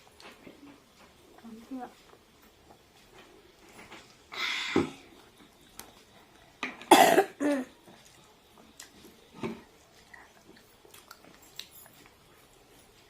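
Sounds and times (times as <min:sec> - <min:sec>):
person coughing: 0:06.9 - 0:07.7
faint chewing clicks: 0:07.8 - 0:13.0.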